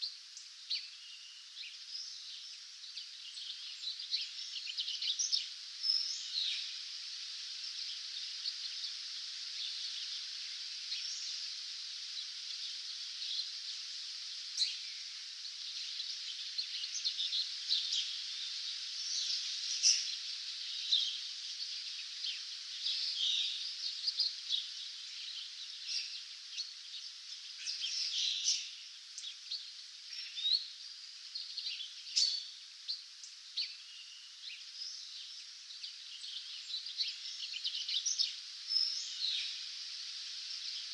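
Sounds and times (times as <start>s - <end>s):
songbird chorus: 0.0s - 40.9s.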